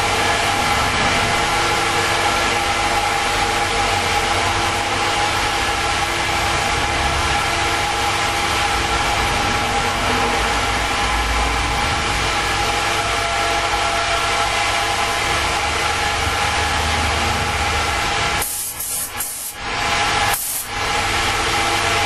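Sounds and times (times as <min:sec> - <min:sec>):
air compressor motor hum: 0:00.0 - 0:22.0
spray gun hissing: 0:18.4 - 0:19.6, 0:20.3 - 0:20.7.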